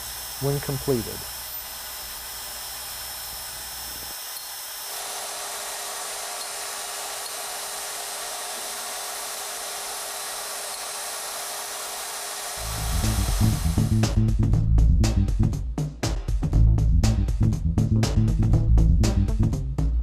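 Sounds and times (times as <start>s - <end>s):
grinding machine high hissing grind: 0.0s - 14.2s
low hum: 12.6s - 15.5s.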